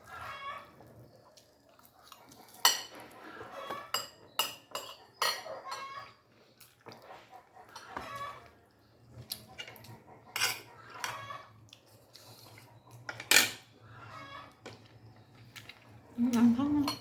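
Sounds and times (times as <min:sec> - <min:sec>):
cutlery clinking on a plate: 0:02.5 - 0:06.0, 0:09.5 - 0:11.2, 0:12.2 - 0:13.7.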